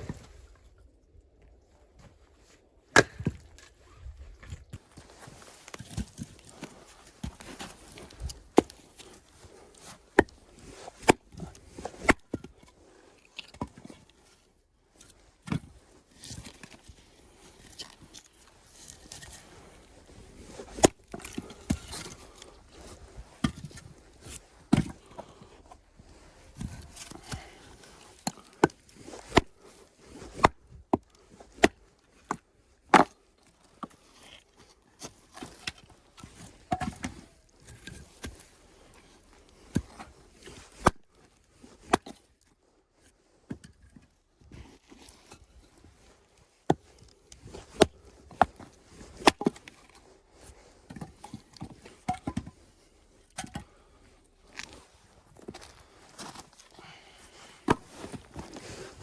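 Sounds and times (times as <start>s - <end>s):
scraping and handling noise: 33.2s - 59.0s.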